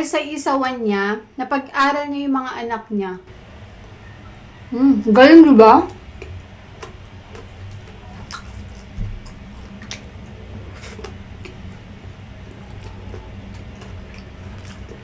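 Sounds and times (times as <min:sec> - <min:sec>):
low steady hum: 0:03.3 - 0:15.0
person chewing food: 0:05.9 - 0:15.0.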